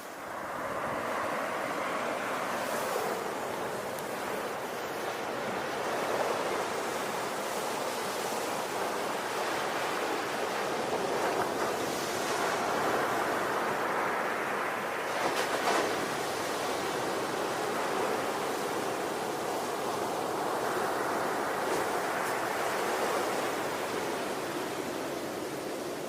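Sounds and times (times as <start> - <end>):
ocean waves breaking on shore: 0.0 - 26.0.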